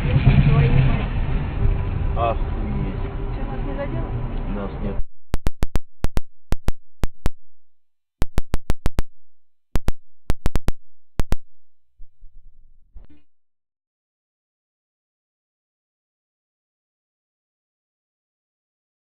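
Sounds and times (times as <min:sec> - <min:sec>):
dull low thumps: 0:05.0 - 0:13.3
sharp clicks: 0:05.3 - 0:12.2.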